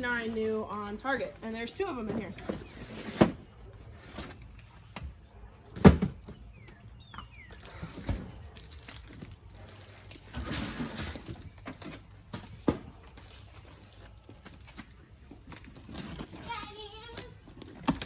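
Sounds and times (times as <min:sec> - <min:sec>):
cardboard and plastic crinkling: 0:00.0 - 0:05.2, 0:06.4 - 0:18.0.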